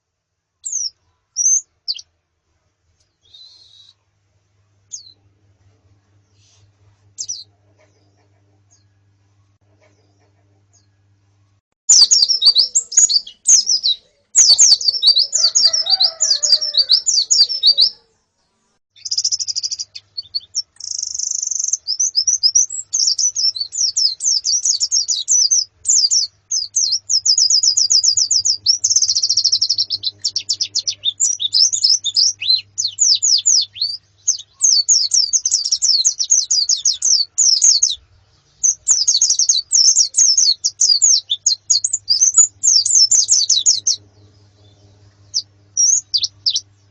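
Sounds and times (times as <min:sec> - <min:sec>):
flock of birds twittering: 0:11.9 - 0:18.0, 0:38.6 - 0:46.9.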